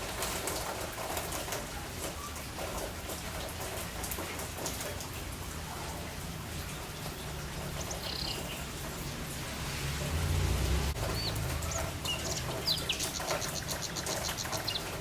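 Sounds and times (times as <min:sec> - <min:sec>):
rain drops pattering: 0:00.0 - 0:15.0
high bird chirp: 0:07.8 - 0:08.6, 0:11.1 - 0:15.0.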